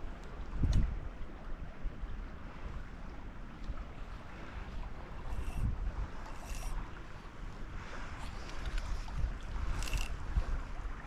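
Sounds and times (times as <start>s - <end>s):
creek water rushing: 2.5s - 11.0s.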